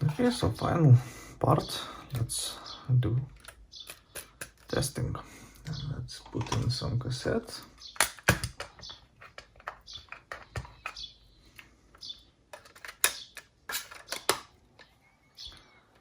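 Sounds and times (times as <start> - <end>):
sharp plastic snaps: 3.3 - 4.8, 7.8 - 14.9
plastic cassette clicks and clacks: 3.4 - 4.7, 7.8 - 11.1, 11.9 - 14.9.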